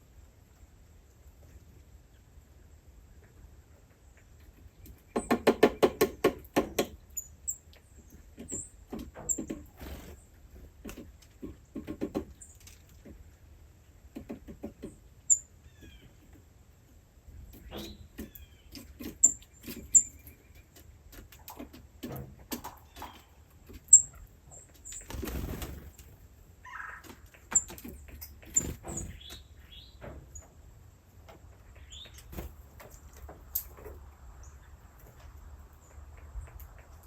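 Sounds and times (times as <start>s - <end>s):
wing flapping: 24.8s - 26.2s.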